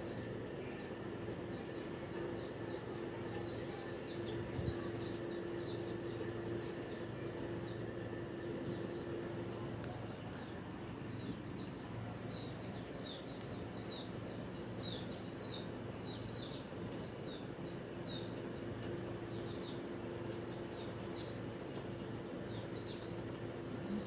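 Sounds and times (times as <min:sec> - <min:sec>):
bird chirping: 0:00.0 - 0:24.0
sharp clicks: 0:18.8 - 0:20.1.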